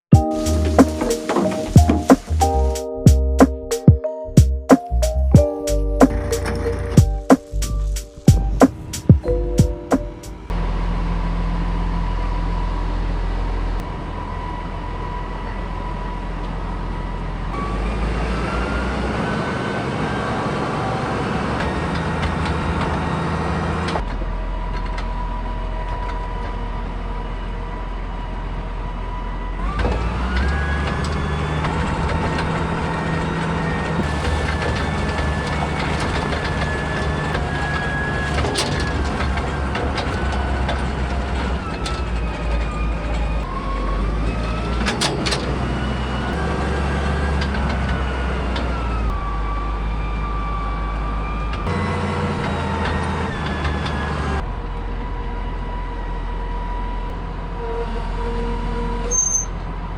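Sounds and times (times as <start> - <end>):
farm vehicle engine running: 5.0 - 49.2
engine whine: 5.0 - 57.5.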